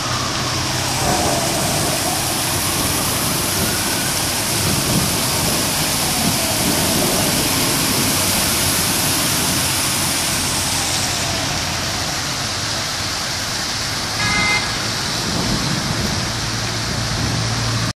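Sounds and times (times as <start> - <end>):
rain falling: 0.0 - 17.9
short pitched tone: 14.2 - 14.9.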